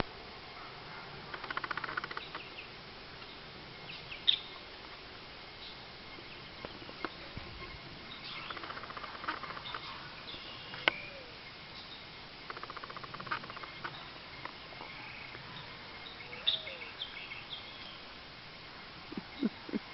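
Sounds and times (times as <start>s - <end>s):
rapid pulsed bird chattering: 1.2s - 2.7s, 5.5s - 19.9s
bird chirps and calls: 5.6s - 18.0s.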